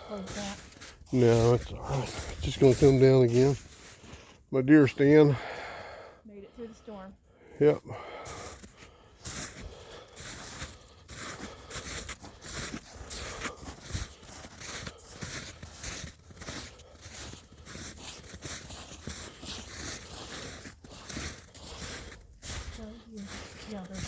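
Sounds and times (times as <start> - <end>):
footsteps crunching in snow: 0.0 - 5.1, 7.7 - 24.0.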